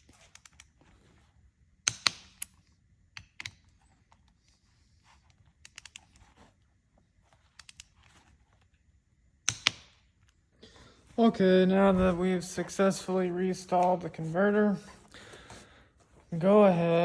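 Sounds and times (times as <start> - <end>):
metallic clicks of hand tools: 1.8 - 3.7, 9.4 - 10.0.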